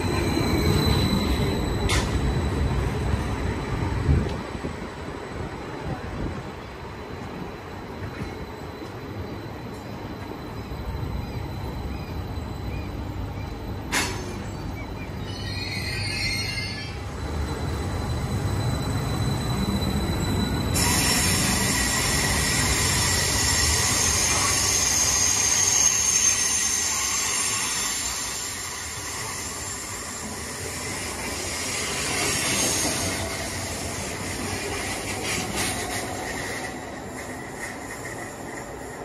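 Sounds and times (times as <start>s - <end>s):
train wheels rumbling on rails: 0.0s - 39.0s
high squealing tones: 15.2s - 30.3s.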